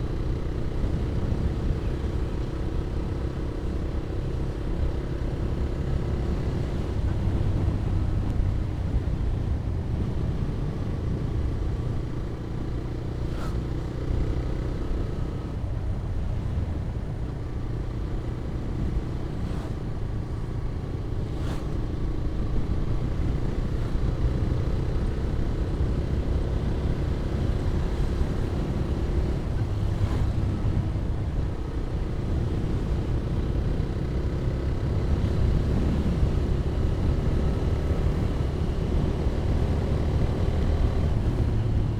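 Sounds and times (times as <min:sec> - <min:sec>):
wind rumble on microphone: 0:15.0 - 0:41.9.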